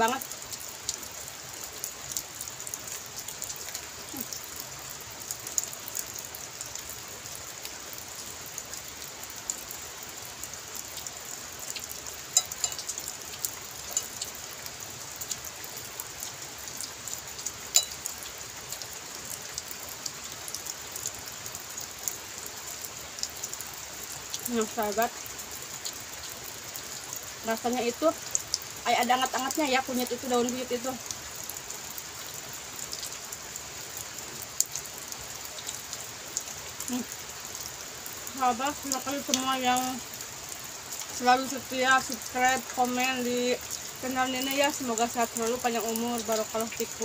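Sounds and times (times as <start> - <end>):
steady rain falling: 0.0 - 47.0
spoon clicking against a plate: 17.8 - 18.0.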